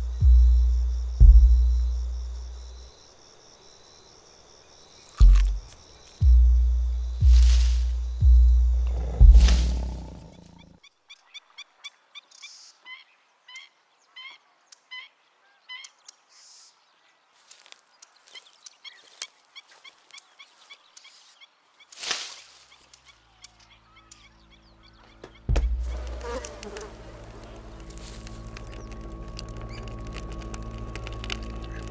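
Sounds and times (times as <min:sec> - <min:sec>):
low rumble: 0:00.0 - 0:02.8, 0:05.2 - 0:10.3, 0:25.5 - 0:31.9.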